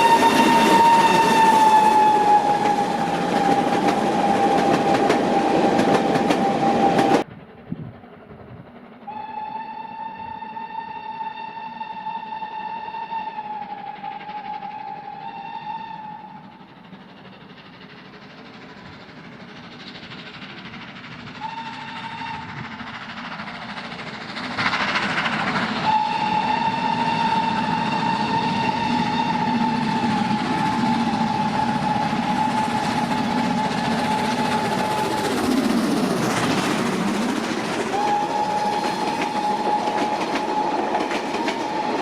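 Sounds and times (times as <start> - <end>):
steam locomotive whistle: 0.0 - 7.3, 9.1 - 16.7, 21.4 - 22.9, 25.3 - 42.0
train running noise: 0.0 - 42.0.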